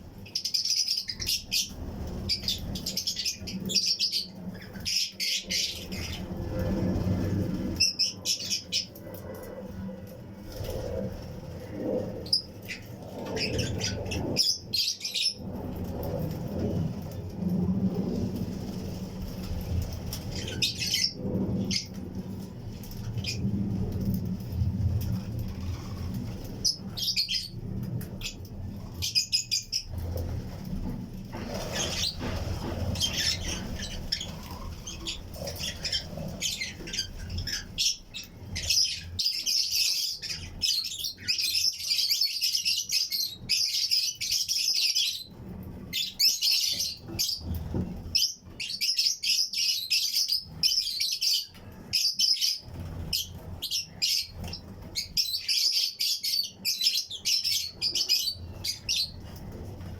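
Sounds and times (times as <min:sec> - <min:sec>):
low rumble: 0:01.2 - 0:40.8
lovebirds chirping: 0:31.5 - 0:45.0.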